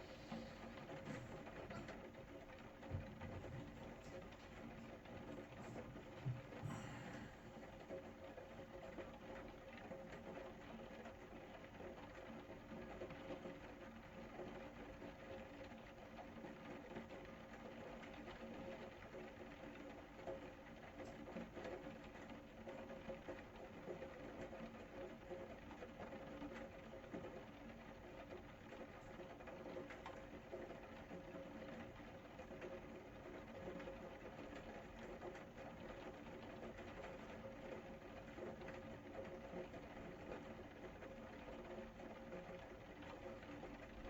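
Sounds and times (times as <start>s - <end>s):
faint steady hum: 0.0s - 15.2s
faint rain pattering: 0.0s - 44.0s.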